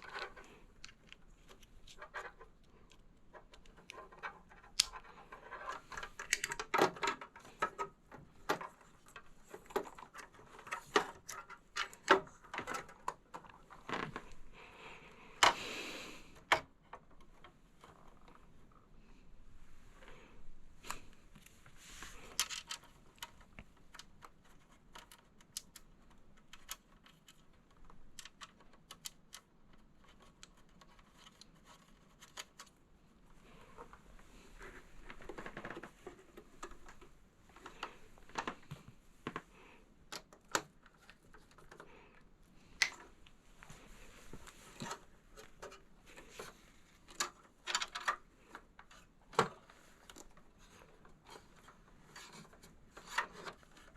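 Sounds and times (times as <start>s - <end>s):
light clicks and taps: 22.3s - 32.8s.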